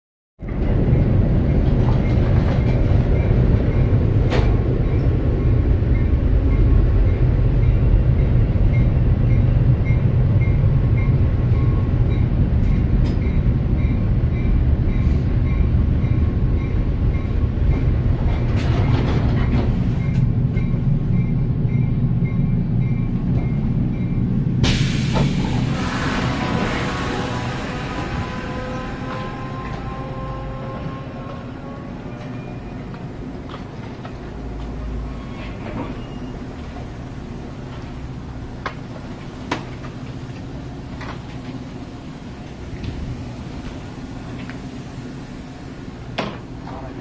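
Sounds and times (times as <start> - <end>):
train wheels rumbling on rails: 0.4 - 47.0
sudden burst of noise: 24.6 - 29.4.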